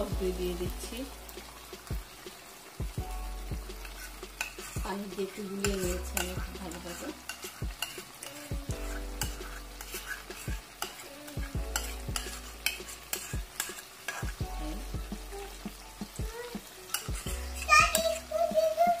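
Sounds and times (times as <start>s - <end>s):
food sizzling in hot oil: 0.0s - 19.0s
liquid pouring into pan: 1.2s - 18.8s.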